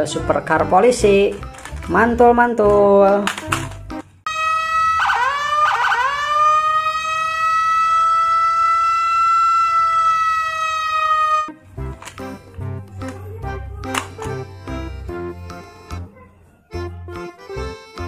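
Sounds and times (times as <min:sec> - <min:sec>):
police siren: 0:04.3 - 0:11.6.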